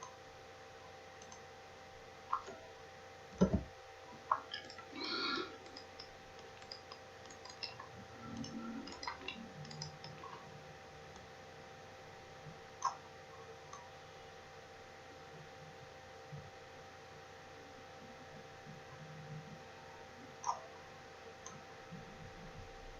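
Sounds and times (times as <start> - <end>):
computer mouse clicks: 1.2 - 1.4, 4.3 - 10.4, 12.8 - 13.0, 20.4 - 20.7
low thump: 3.4 - 3.7.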